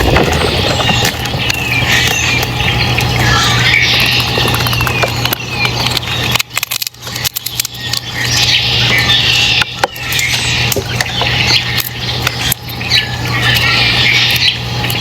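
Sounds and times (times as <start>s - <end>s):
small birds chirping: 0.0s - 15.0s
steady low hum: 0.0s - 15.0s
sharp clicks: 4.0s - 9.0s.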